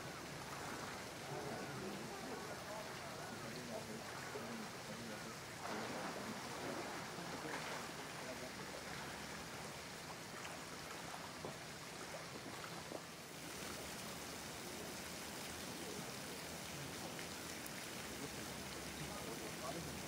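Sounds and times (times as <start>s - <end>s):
running water hissing: 0.0s - 20.0s
water drips: 8.8s - 20.0s.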